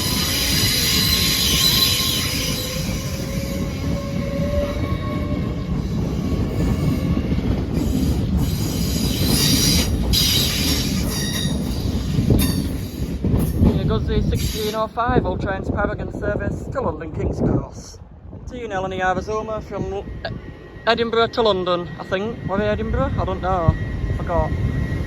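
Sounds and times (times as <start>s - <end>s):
wheel squeal: 0.0s - 13.0s
train wheels rumbling on rail: 0.0s - 25.0s.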